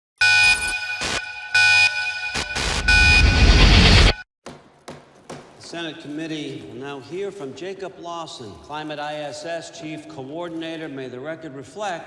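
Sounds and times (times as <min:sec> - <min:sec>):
electronic alarm buzzer blasts: 0:00.2 - 0:04.2.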